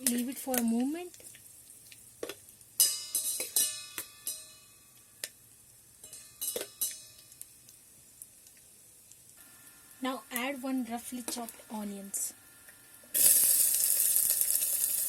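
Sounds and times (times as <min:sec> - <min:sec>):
seeds crackling in hot oil: 0:00.0 - 0:15.0
metallic ticks: 0:06.0 - 0:07.5.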